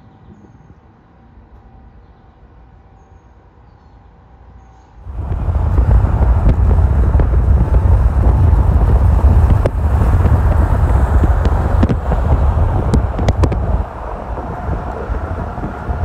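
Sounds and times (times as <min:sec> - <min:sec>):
vehicle rumble: 0:04.8 - 0:16.0
wind buffeting microphone: 0:05.0 - 0:16.0.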